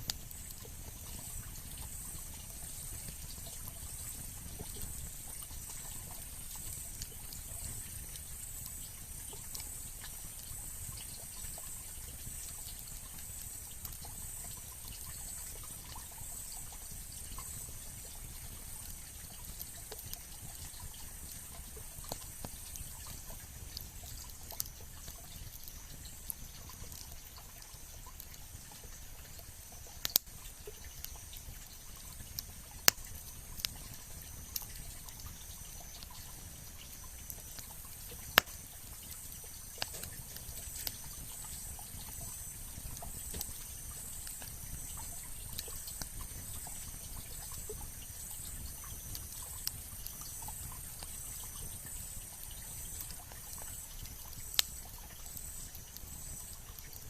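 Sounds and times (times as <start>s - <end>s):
campfire crackling: 0.0s - 57.0s.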